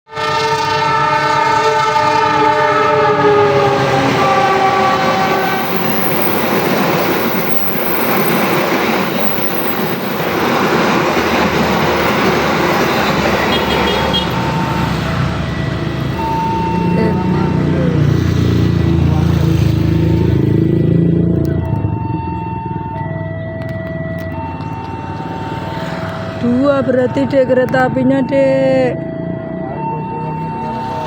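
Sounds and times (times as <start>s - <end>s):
train horn: 0.1s - 15.6s
train cars rumbling past: 0.1s - 31.0s.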